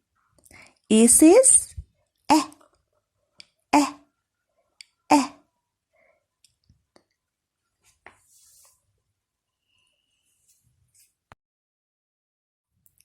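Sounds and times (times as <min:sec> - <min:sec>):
person saying short syllables: 0:02.3 - 0:02.6, 0:03.8 - 0:04.0, 0:05.1 - 0:05.4.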